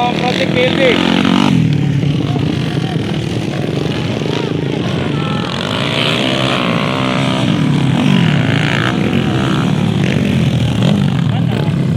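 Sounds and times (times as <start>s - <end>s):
dirt bike engines revving: 0.0s - 11.9s.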